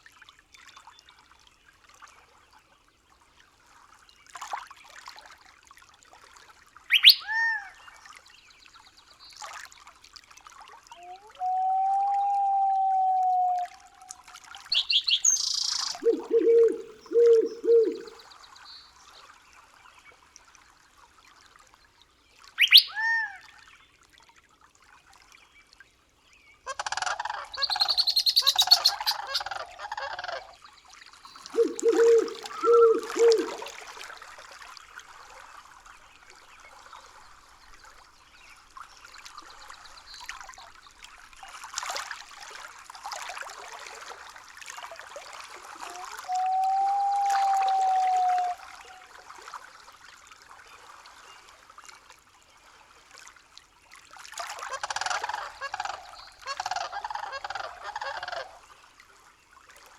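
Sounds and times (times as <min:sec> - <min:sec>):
faint running water: 0:00.0 - 0:59.9
whistled bird call: 0:06.9 - 0:07.7, 0:11.0 - 0:14.1, 0:14.7 - 0:18.2, 0:22.6 - 0:23.3, 0:27.5 - 0:29.6, 0:31.3 - 0:33.7, 0:45.8 - 0:49.1
harsh rattling bird call: 0:14.7 - 0:16.0, 0:27.0 - 0:29.9.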